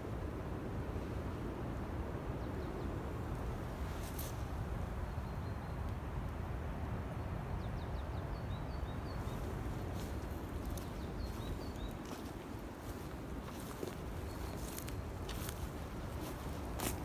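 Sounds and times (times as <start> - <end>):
small songbird chirping: 8.4 - 17.0.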